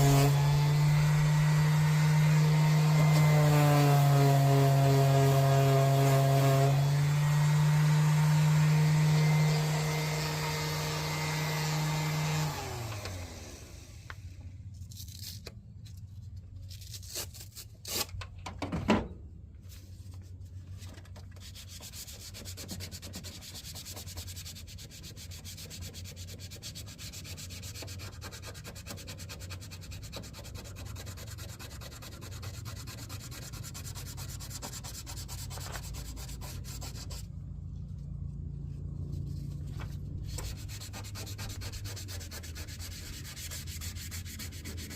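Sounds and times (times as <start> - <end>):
power tool motor winding down: 0.0 - 14.3
sanding rough rubbing: 21.4 - 37.3, 39.2 - 44.9.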